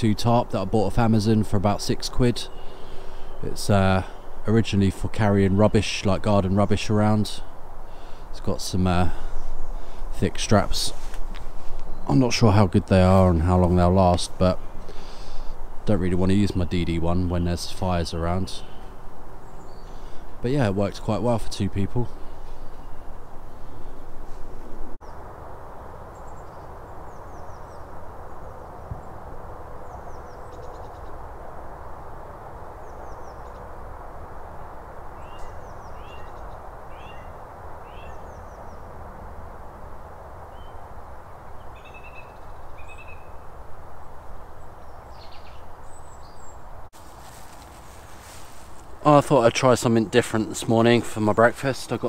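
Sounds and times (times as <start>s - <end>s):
small birds chirping: 0.0s - 25.2s, 26.2s - 29.2s, 29.8s - 31.3s, 32.8s - 33.8s, 34.5s - 39.0s, 41.5s - 52.0s
short falling bird calls: 2.5s - 4.4s, 18.6s - 20.4s, 35.2s - 38.8s.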